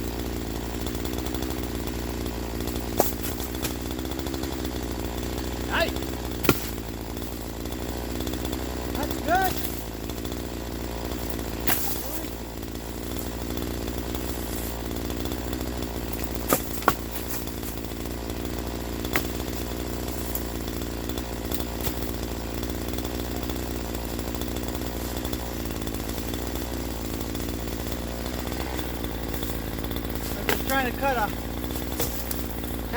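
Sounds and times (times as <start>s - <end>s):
chainsaw running: 0.0s - 32.9s
sharp knocks: 6.4s - 6.9s, 16.1s - 17.6s.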